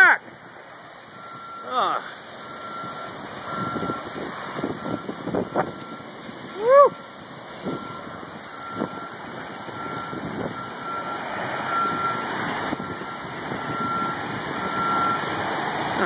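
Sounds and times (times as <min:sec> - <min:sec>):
heavy rain: 0:00.0 - 0:16.0
wind: 0:00.0 - 0:16.0.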